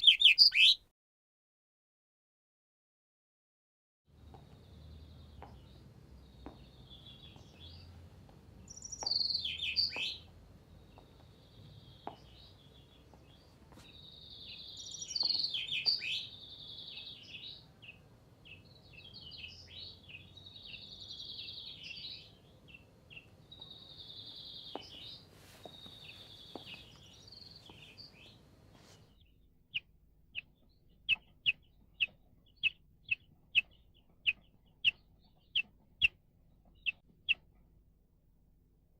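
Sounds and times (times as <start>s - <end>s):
chaffinch singing: 0.0s - 0.8s, 8.6s - 28.5s, 29.1s - 37.4s
sharp bird call notes: 0.0s - 0.8s.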